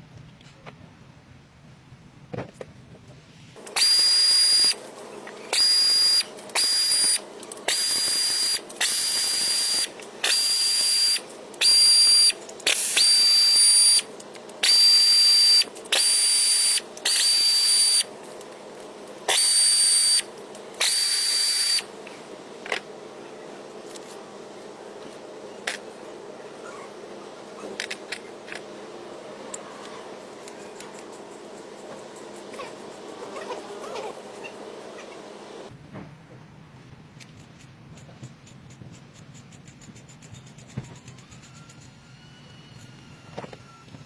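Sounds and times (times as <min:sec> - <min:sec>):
hissing blasts with high whistle: 0:03.7 - 0:04.8, 0:05.5 - 0:18.1, 0:19.3 - 0:21.9.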